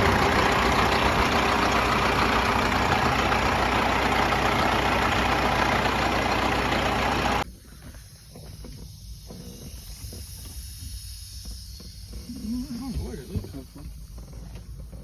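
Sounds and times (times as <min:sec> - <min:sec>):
diesel truck engine running: 0:00.0 - 0:07.4.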